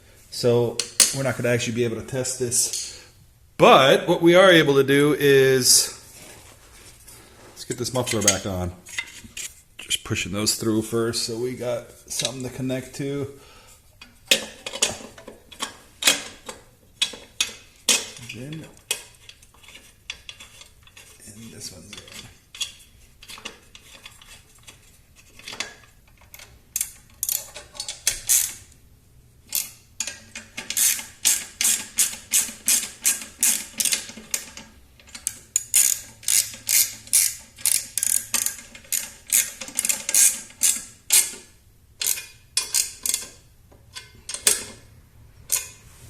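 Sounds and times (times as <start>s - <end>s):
ratchet wrench clicking: 26.8s - 28.7s, 29.5s - 43.3s, 45.5s - 45.8s.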